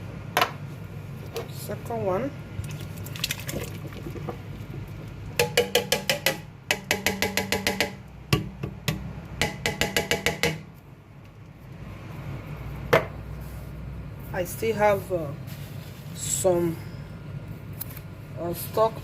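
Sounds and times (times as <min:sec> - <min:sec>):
rapid knocking on a tin: 0:03.6 - 0:10.7.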